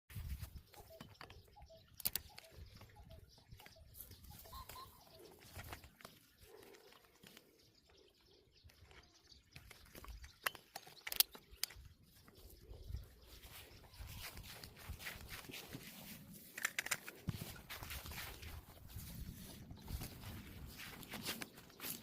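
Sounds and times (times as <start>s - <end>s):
faint bird calls: 0.3s - 16.2s.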